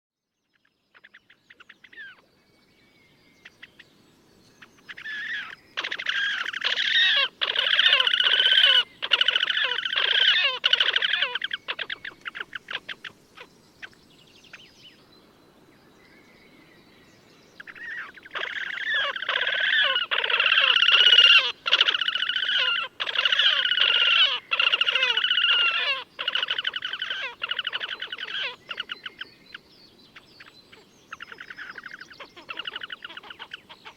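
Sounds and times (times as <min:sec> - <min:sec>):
short bird calls: 0:04.6 - 0:14.8, 0:17.6 - 0:33.9
grebes trilling calls: 0:04.7 - 0:14.0, 0:17.6 - 0:29.7, 0:30.4 - 0:33.9.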